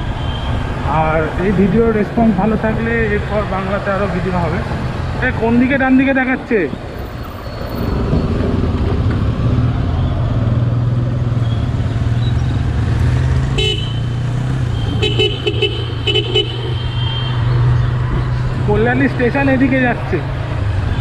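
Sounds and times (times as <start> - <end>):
road and wind noise: 0.0 - 21.0
vehicle horn honking: 13.5 - 17.4.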